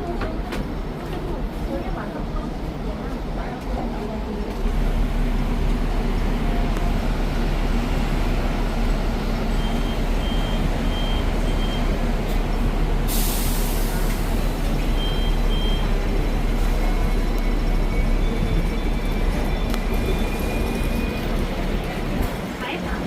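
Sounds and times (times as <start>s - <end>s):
tram rumbling: 0.0s - 23.0s
hissing air burst: 13.0s - 14.1s.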